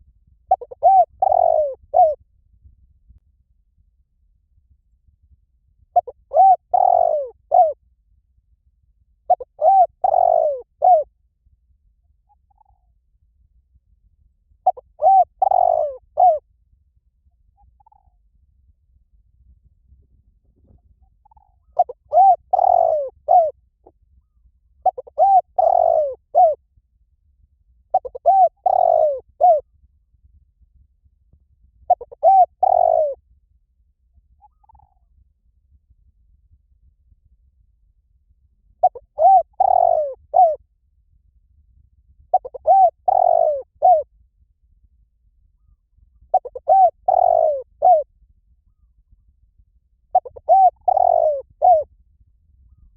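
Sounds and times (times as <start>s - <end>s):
dove cooing: 0.5s - 2.2s, 6.0s - 7.8s, 9.3s - 11.1s, 14.6s - 16.4s, 21.2s - 23.6s, 24.8s - 26.6s, 27.9s - 29.6s, 31.9s - 33.2s, 34.4s - 35.0s, 38.8s - 40.6s, 42.3s - 44.1s, 45.6s - 48.1s, 50.1s - 51.9s.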